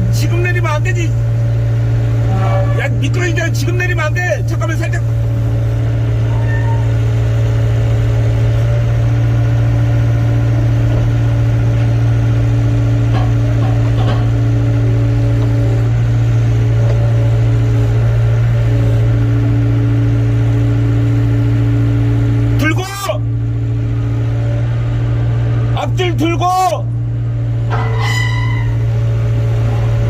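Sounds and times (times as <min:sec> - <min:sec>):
diesel engine drone: 0:00.0 - 0:30.0
higher hum: 0:26.8 - 0:30.0.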